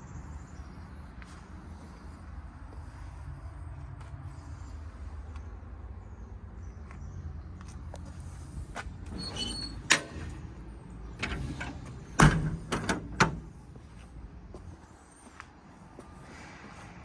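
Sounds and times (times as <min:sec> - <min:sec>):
metal door latch clunking: 0:09.0 - 0:13.8.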